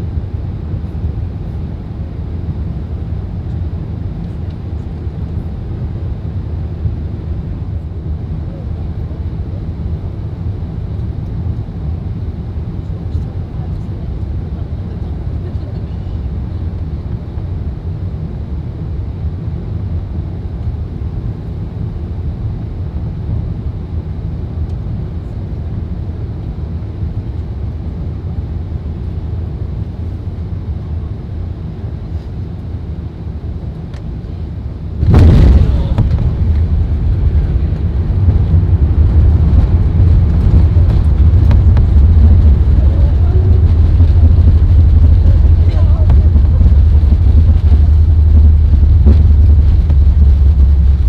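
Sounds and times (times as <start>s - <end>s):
aircraft cabin low roar: 0.0s - 51.0s
rough rumble on runway: 19.2s - 51.0s.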